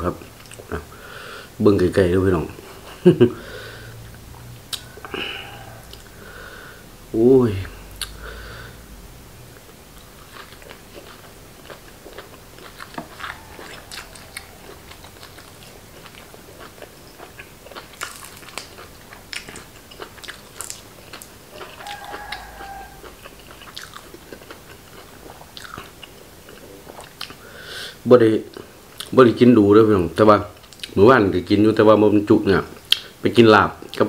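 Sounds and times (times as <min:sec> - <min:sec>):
person chewing crunchy food: 0:09.6 - 0:27.5.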